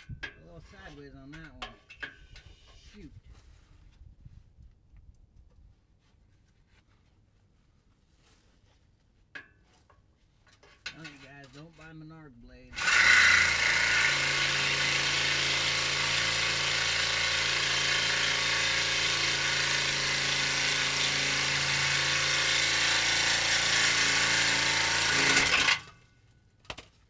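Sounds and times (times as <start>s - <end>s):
reciprocating saw cutting metal pipe: 12.8s - 26.0s.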